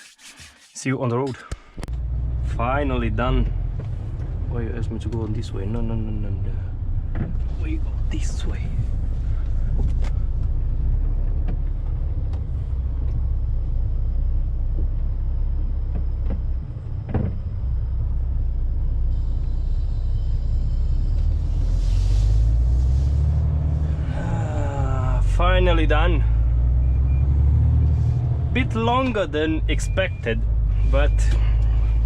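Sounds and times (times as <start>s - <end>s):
diesel truck engine rumbling: 1.4s - 32.0s
rattles and knocks: 15.9s - 17.5s.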